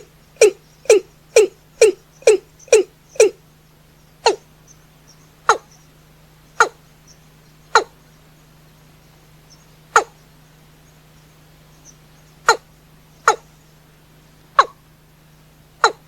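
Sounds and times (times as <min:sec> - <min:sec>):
bird calling sharp notes: 0:00.0 - 0:03.4
faint steady hum: 0:00.0 - 0:16.0.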